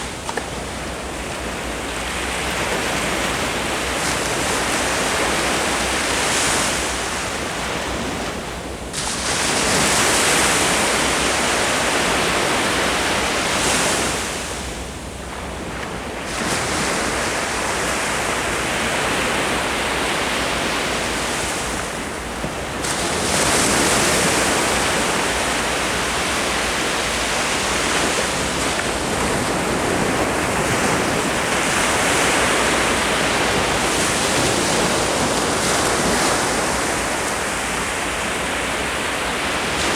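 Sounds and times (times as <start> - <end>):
ocean surf breaking: 16.2 - 39.9.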